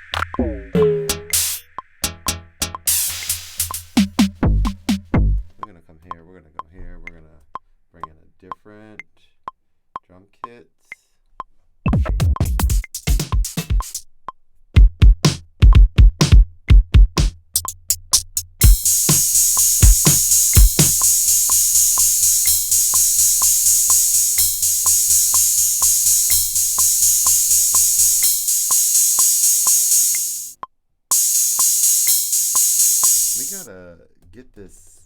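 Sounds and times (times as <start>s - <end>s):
dense hi-hat layer: 0.0s - 5.5s, 11.9s - 14.0s, 14.8s - 33.7s
drum machine beat: 0.0s - 5.6s, 11.9s - 14.0s, 14.8s - 33.7s
kick and bass hits: 2.0s - 5.5s, 11.9s - 13.4s, 14.8s - 17.3s, 18.6s - 21.2s.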